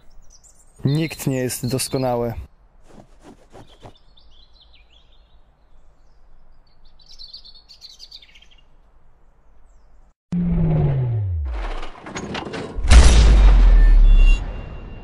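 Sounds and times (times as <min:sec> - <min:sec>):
birds chirping: 0:00.0 - 0:10.2
faint outdoor background noise: 0:00.0 - 0:10.2.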